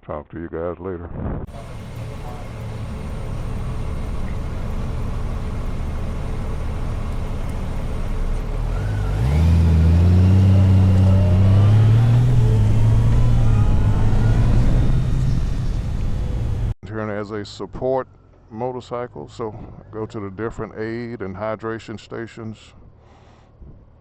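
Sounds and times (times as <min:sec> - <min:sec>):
motorcycle engine accelerating: 0:01.5 - 0:16.8.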